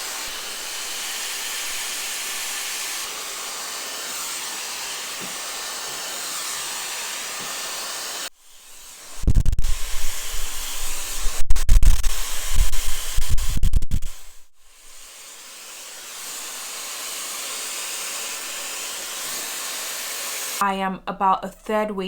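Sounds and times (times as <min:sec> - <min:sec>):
hair dryer blowing: 0:00.0 - 0:20.6
airflow buffeting microphone: 0:09.1 - 0:15.0.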